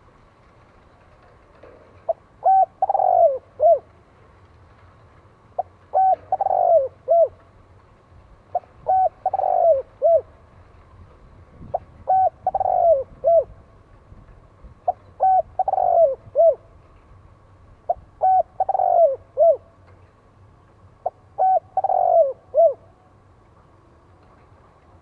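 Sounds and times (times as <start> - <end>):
dove cooing: 2.0 - 3.9, 5.6 - 7.4, 8.5 - 10.4, 11.7 - 13.6, 14.9 - 16.7, 17.9 - 19.8, 21.0 - 23.0.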